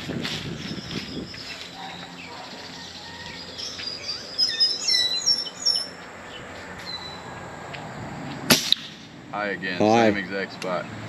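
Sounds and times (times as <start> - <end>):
steady outdoor hiss: 0.0 - 11.0
bird chirping: 0.3 - 7.4.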